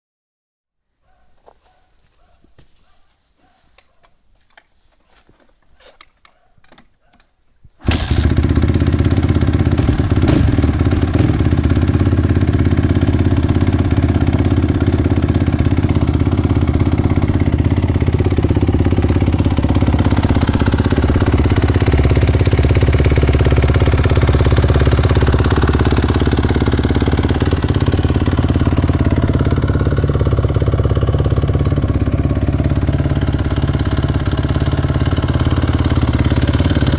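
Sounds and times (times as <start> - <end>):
motorcycle engine starting and running: 7.8 - 36.9.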